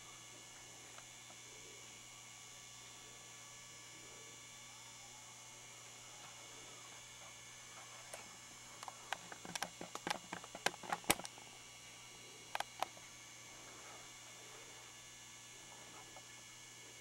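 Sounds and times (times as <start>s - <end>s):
electrical hum from a sign: 0.0s - 17.0s
sharp irregular clicks and taps: 8.8s - 11.4s, 12.5s - 13.0s.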